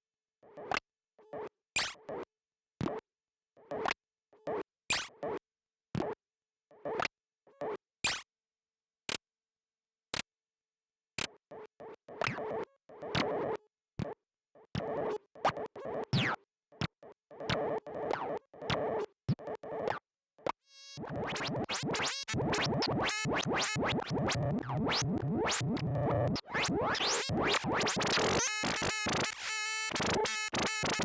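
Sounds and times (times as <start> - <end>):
glitchy synthesizer blips: 20.9 - 31.0.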